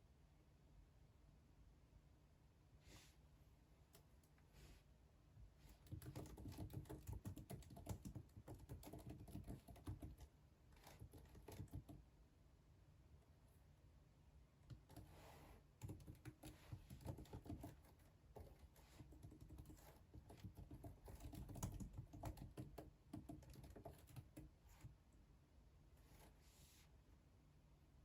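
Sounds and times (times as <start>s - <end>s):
computer keyboard typing: 5.7s - 12.0s, 14.6s - 15.2s, 15.8s - 24.9s.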